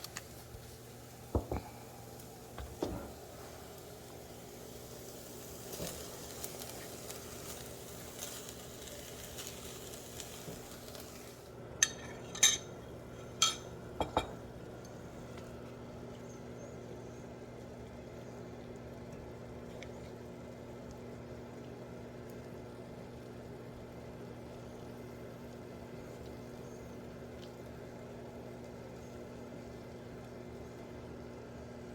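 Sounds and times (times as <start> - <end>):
food sizzling in a skillet: 0.0 - 11.5
steady low hum: 0.0 - 21.6
metal cookware clinks: 11.8 - 14.4.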